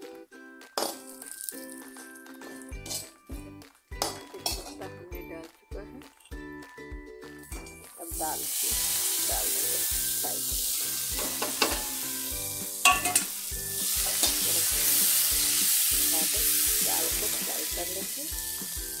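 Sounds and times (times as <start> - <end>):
spatula clinking and scraping pan: 0.8 - 3.2, 3.9 - 5.0, 10.9 - 15.6
lentils sizzling in hot oil: 1.1 - 2.0, 7.9 - 19.0.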